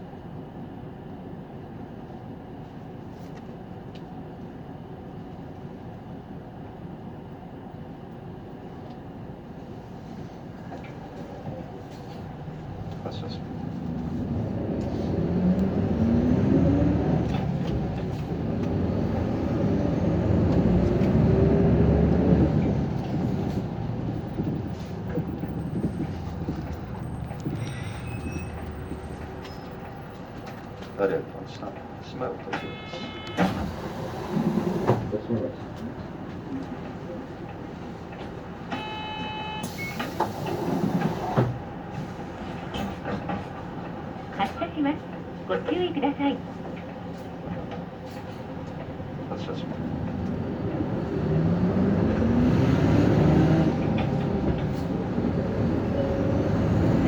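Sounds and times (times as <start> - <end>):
bus engine accelerating: 0.0 - 38.8, 39.6 - 57.0
short high beep: 32.6 - 33.6, 38.7 - 40.0.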